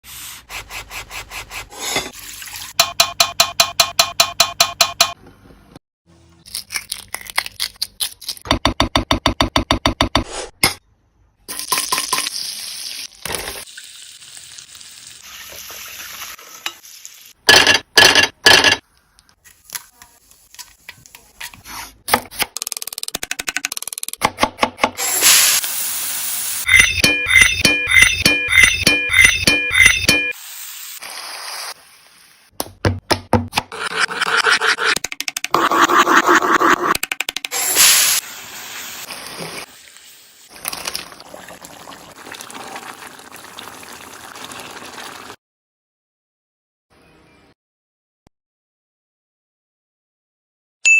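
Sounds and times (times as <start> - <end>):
oil sizzling in a pan: 11.8 - 17.4, 25.0 - 26.7, 30.3 - 32.5, 37.6 - 45.4.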